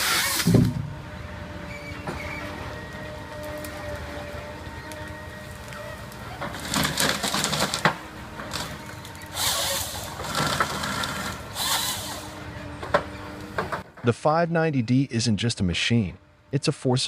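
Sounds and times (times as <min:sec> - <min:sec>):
wood cutting and cracking: 0:00.0 - 0:00.9, 0:02.3 - 0:13.8
tree-felling machine running: 0:00.0 - 0:16.8.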